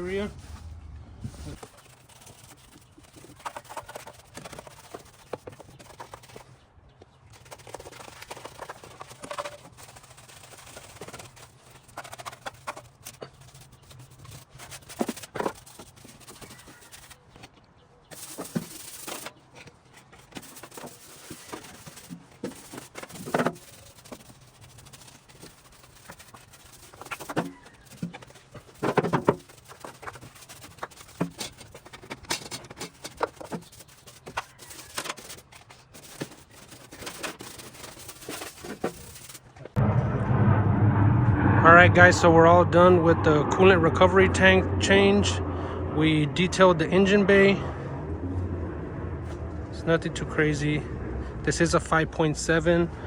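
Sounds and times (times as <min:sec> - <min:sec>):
rubbing cloth on engine parts: 0:00.0 - 0:06.6, 0:07.3 - 0:17.5, 0:18.1 - 0:39.6.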